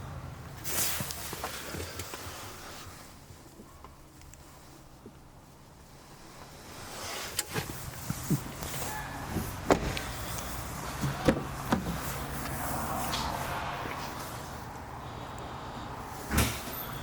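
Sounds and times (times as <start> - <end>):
sharp clicks and knocks: 9.3 - 12.6.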